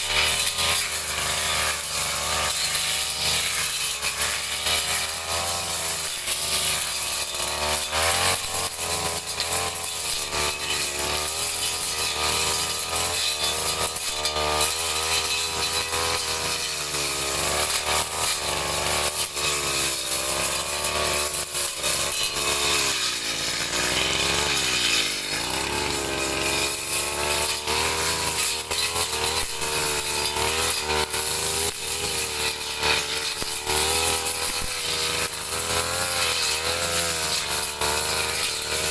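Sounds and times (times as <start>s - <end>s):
brush cutter engine cutting grass: 0.0s - 38.9s.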